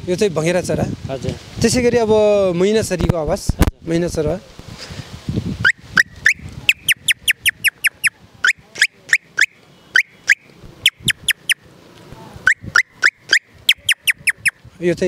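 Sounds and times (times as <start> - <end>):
man imitating bird chirps: 5.6 - 11.6, 12.5 - 14.6.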